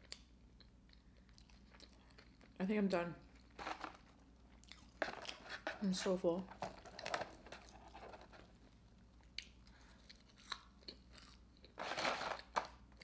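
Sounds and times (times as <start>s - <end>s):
quiet chewing: 0.0s - 2.6s, 4.5s - 5.7s, 6.9s - 11.8s.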